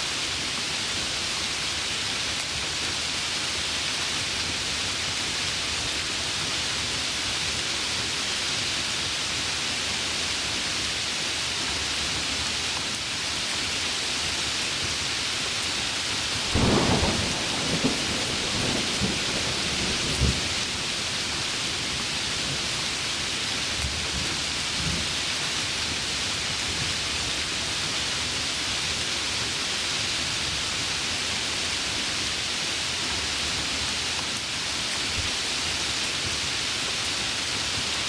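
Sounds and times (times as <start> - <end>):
heavy rain: 0.0 - 38.0
thunder clap rumbling: 16.5 - 21.1.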